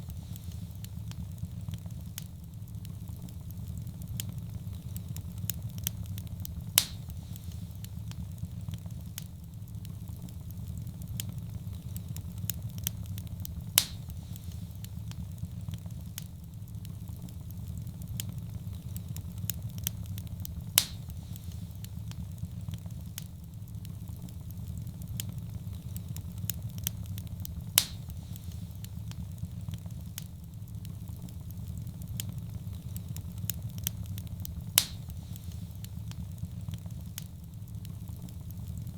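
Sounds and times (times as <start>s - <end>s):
wood fire crackling: 0.0s - 38.9s
sharp fire pop: 6.6s - 8.2s, 13.6s - 15.2s, 20.8s - 22.2s, 27.6s - 29.2s, 34.5s - 36.2s.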